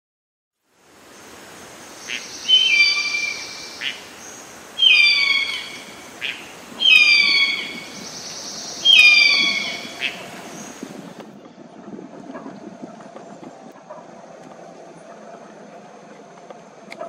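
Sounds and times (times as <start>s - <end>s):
steady high-pitched hiss: 0.6s - 11.2s
bird whistled calls: 2.0s - 4.0s, 4.8s - 10.8s.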